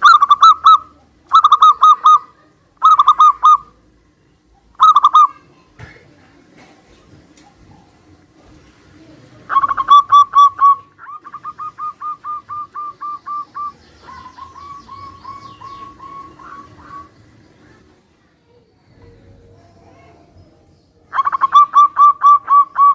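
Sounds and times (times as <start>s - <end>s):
doves cooing: 0.0s - 3.9s, 4.6s - 5.4s, 6.6s - 18.0s, 21.1s - 22.9s.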